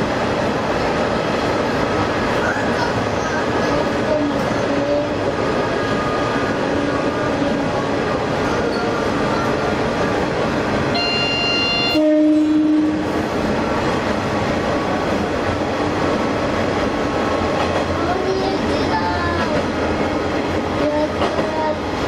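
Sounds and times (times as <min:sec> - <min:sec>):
train engine and wheels rumbling: 0:00.0 - 0:22.0
two-tone train horn: 0:10.9 - 0:13.1.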